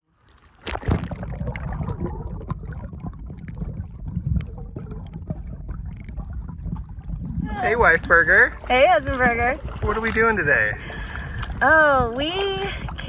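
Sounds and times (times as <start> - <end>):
water splashing around kayak: 0.0 - 13.0
wind rumble on microphone: 0.9 - 13.0.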